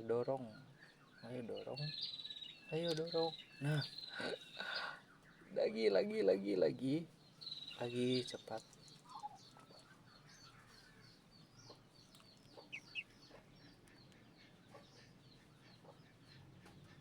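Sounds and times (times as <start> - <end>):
duckling peeping: 12.4 - 17.0.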